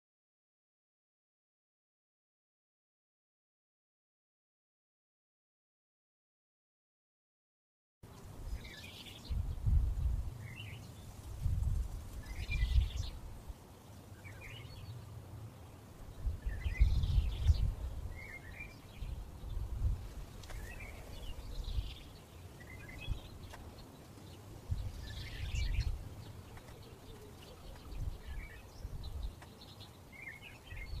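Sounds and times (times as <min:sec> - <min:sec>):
small bird chirping: 0:08.1 - 0:13.2, 0:13.9 - 0:15.1, 0:15.7 - 0:31.0
wind rumbling on microphone: 0:08.1 - 0:31.0.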